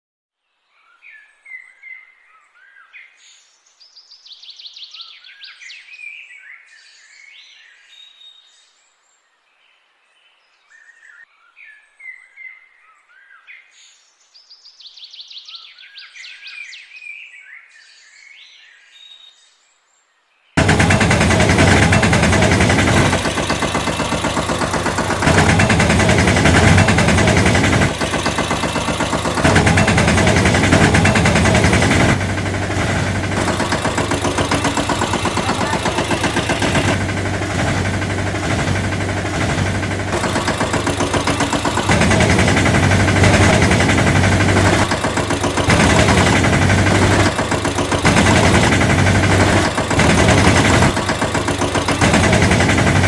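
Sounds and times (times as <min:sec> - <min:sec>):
engine idling: 0:20.6 - 0:53.0.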